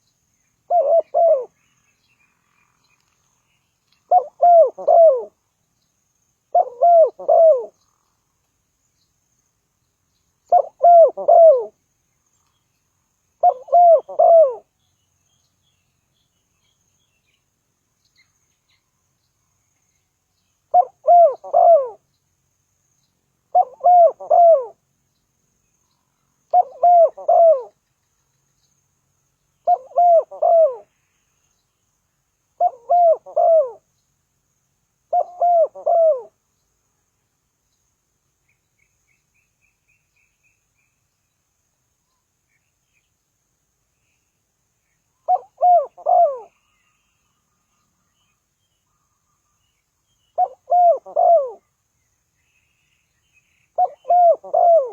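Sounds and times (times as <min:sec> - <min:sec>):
dove cooing: 0:00.7 - 0:01.6, 0:04.1 - 0:05.4, 0:06.5 - 0:07.8, 0:10.5 - 0:11.8, 0:13.4 - 0:14.7, 0:20.7 - 0:22.0, 0:23.5 - 0:24.8, 0:26.5 - 0:27.8, 0:29.6 - 0:30.9, 0:32.6 - 0:33.8, 0:35.1 - 0:36.4, 0:45.2 - 0:46.5, 0:50.4 - 0:51.6, 0:53.8 - 0:54.9.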